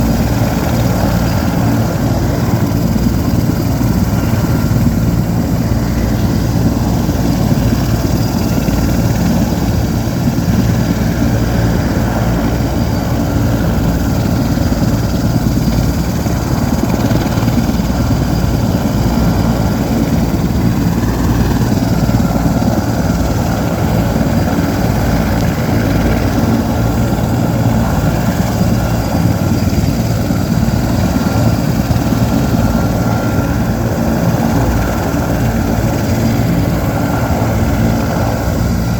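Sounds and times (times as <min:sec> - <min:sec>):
helicopter rotor beat: 0:00.0 - 0:38.9
helicopter turbine whine: 0:00.0 - 0:38.9.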